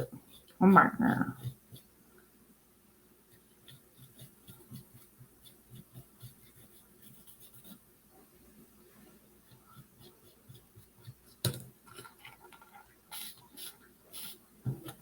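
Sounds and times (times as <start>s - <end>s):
paintbrush strokes on wood: 3.3s - 11.4s, 12.0s - 15.0s.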